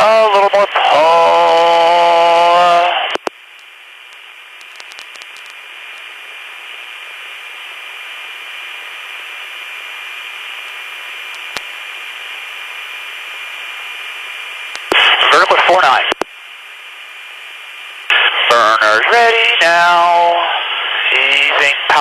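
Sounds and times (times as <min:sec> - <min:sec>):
radio static hiss: 0:00.0 - 0:22.0
faint clicks: 0:03.1 - 0:06.0, 0:10.6 - 0:11.7, 0:14.7 - 0:15.0.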